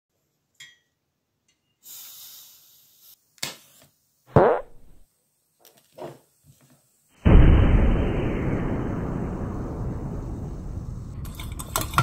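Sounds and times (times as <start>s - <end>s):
stove high hiss: 0.2s - 12.0s
burner igniting with a burp: 4.3s - 5.0s.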